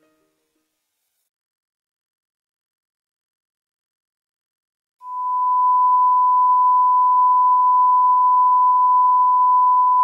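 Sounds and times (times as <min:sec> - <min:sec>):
steady test tone beep: 0:05.0 - 0:10.0.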